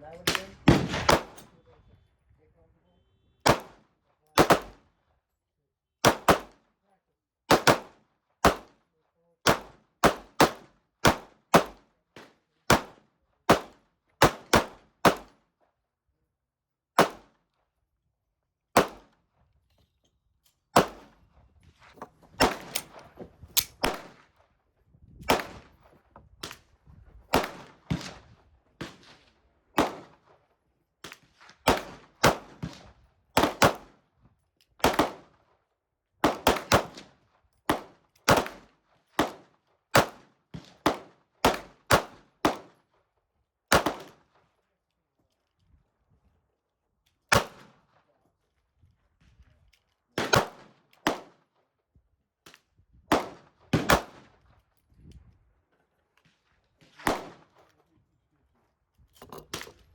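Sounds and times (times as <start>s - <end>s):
gunshots: 0.1s - 1.6s, 3.5s - 3.8s, 4.4s - 4.8s, 20.8s - 21.1s, 22.4s - 24.2s, 27.3s - 28.2s, 57.0s - 57.5s.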